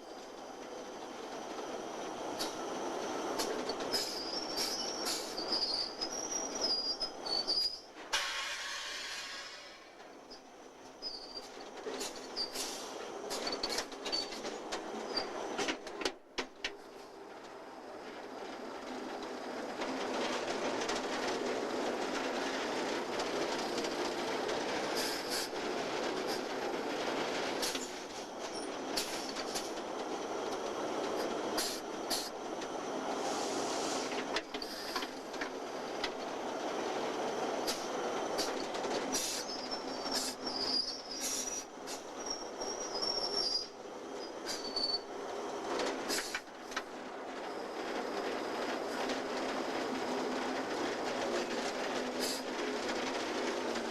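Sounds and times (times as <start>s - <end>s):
train wheel clatter: 0.0s - 53.9s
high wheel squeal: 2.4s - 15.7s, 33.2s - 35.1s, 37.6s - 46.5s.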